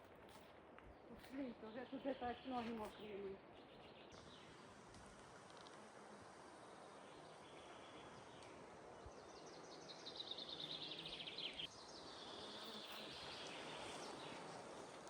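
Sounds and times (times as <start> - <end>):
faint forest background hiss: 0.0 - 15.0
songbird singing: 1.2 - 4.6, 7.0 - 15.0.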